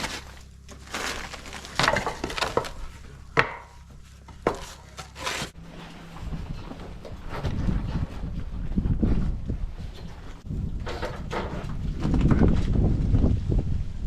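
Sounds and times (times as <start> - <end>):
lumber scraping: 0.0 - 8.2.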